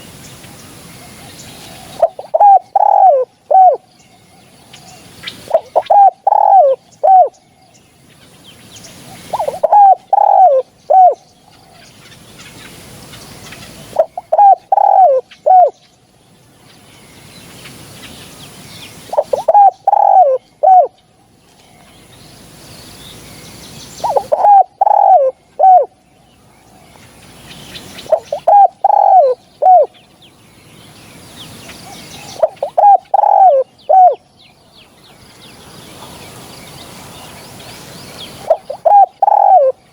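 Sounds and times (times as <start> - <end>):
dove cooing: 1.2 - 3.8, 4.8 - 7.4, 9.1 - 11.8, 13.5 - 15.8, 19.1 - 21.0, 24.0 - 26.0, 28.0 - 30.0, 31.8 - 34.2, 38.4 - 39.8.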